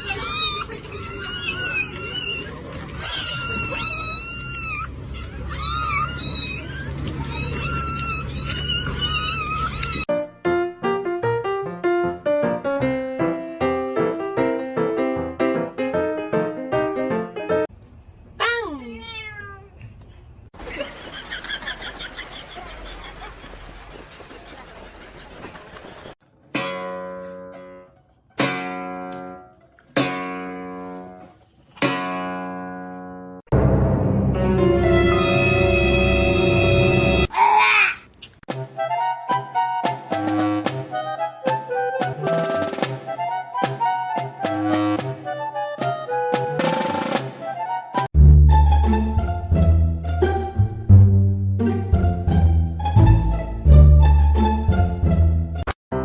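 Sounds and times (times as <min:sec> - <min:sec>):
cat meowing: 0:00.0 - 0:10.1, 0:18.8 - 0:19.7.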